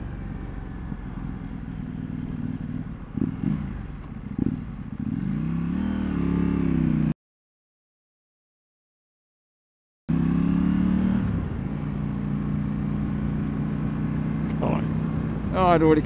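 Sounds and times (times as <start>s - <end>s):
motorcycle engine accelerating: 0.0s - 7.2s, 10.1s - 16.0s
motorcycle throttle blips: 14.2s - 15.6s.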